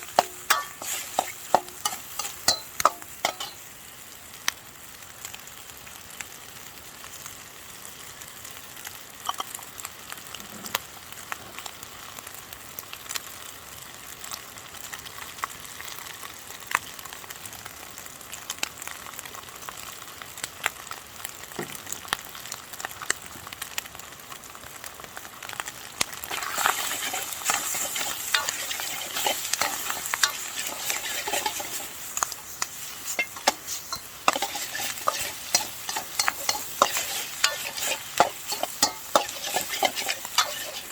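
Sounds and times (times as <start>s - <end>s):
utensil scraping a wok: 0.0s - 3.8s, 26.3s - 40.9s
rice sizzling in a wok: 0.0s - 40.9s.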